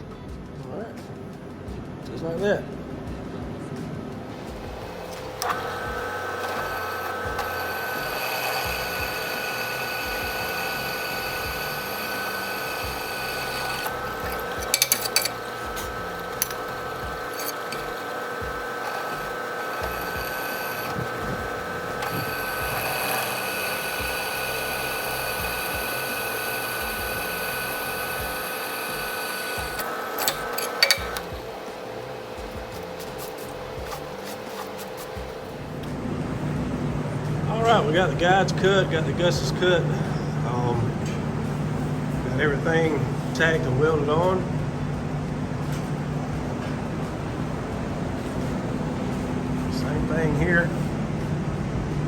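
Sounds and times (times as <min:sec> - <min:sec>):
drill press motor running: 0:04.3 - 0:49.7
drill cutting steel: 0:04.4 - 0:35.7
sharp metallic clinks: 0:06.6 - 0:18.5.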